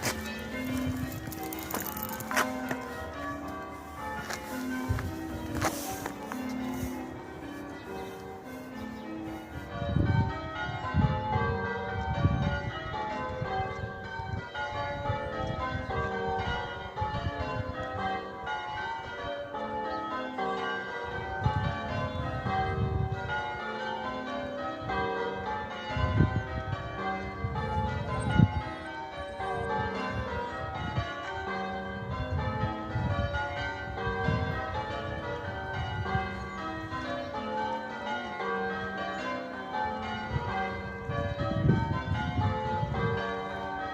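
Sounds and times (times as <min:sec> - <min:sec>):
church bells ringing: 0:00.0 - 0:43.9.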